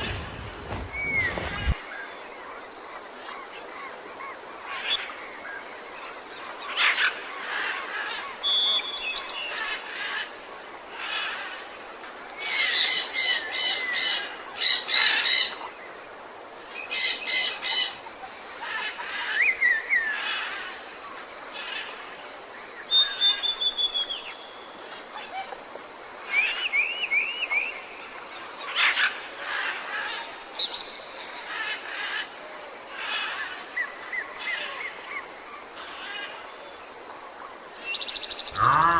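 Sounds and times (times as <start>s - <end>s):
wild birds calling: 0.0s - 1.8s, 38.0s - 38.9s.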